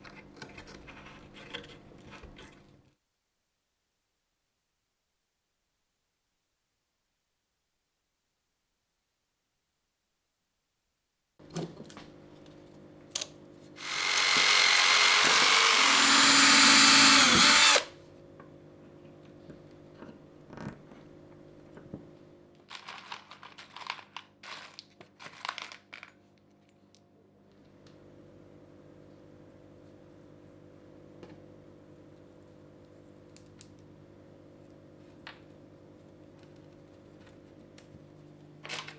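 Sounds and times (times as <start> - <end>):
electric drill running: 13.8 - 17.9.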